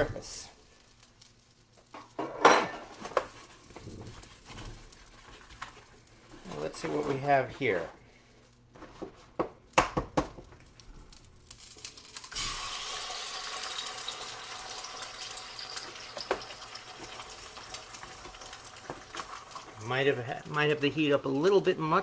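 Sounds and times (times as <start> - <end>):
egg sizzling in butter: 10.9 - 22.0.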